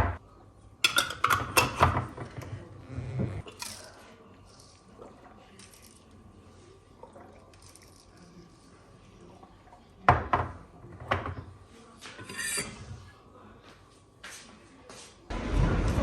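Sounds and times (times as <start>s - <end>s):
dishes clattering: 0.8s - 2.6s, 10.1s - 13.1s.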